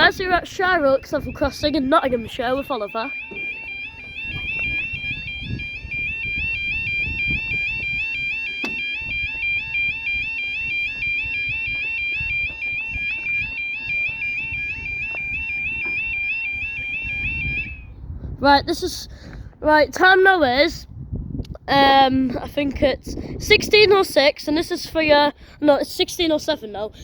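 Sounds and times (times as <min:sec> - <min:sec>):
level crossing alarm warbling: 0:00.0 - 0:17.9
wind noise rumble: 0:00.0 - 0:27.0.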